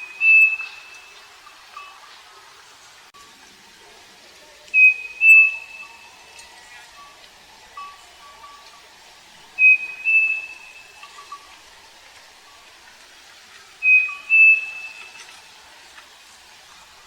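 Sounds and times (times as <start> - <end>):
bird whistling two-note song: 0.0 - 1.2, 4.8 - 6.1, 9.6 - 11.1, 13.8 - 15.2
faint notes of another bird: 0.0 - 1.2, 4.7 - 6.2, 9.6 - 11.4, 13.8 - 15.3.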